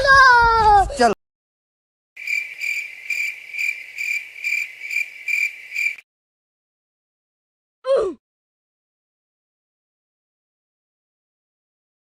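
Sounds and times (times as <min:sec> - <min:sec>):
crickets chirping: 0:02.2 - 0:06.0.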